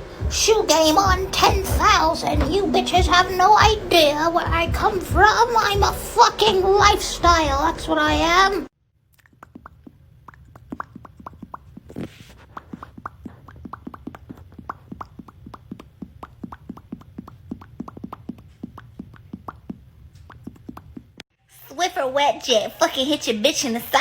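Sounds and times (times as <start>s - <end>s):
low hum: 0.0s - 8.7s.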